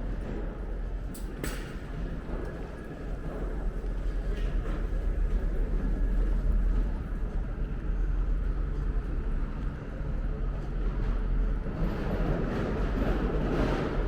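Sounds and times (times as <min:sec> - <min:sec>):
urban noise: 0:00.0 - 0:14.0.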